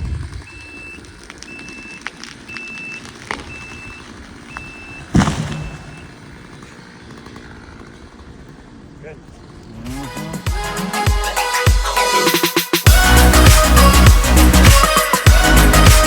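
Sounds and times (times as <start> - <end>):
low engine rumble: 0.0 - 10.7
backup alarm beeping: 0.4 - 6.2
loud thump: 5.1 - 6.1.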